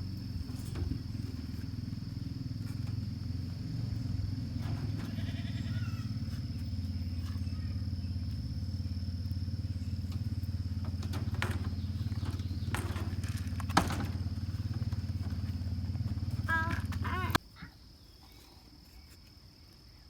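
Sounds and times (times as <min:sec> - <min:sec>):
low hum: 0:00.0 - 0:17.4
calf bleating: 0:04.7 - 0:06.1, 0:16.4 - 0:17.4.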